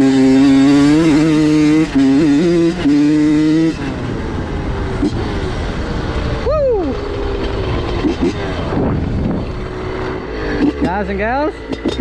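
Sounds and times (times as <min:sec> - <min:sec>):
dirt bike engine revving: 0:00.0 - 0:12.0
wind noise: 0:03.6 - 0:12.0.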